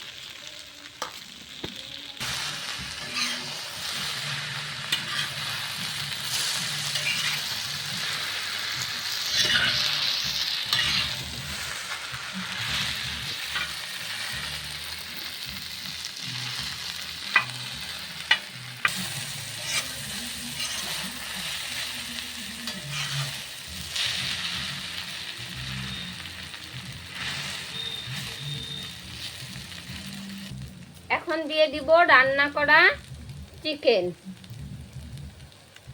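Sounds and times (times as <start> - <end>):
noodles sizzling in a pan: 0.0 - 35.9
spatula stirring and tossing: 2.2 - 14.4, 17.3 - 24.9.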